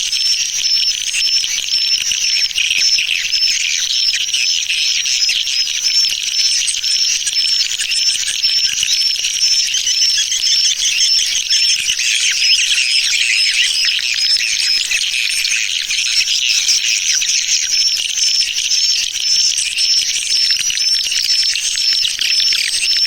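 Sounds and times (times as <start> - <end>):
swiftlets twittering: 6.6 - 19.0.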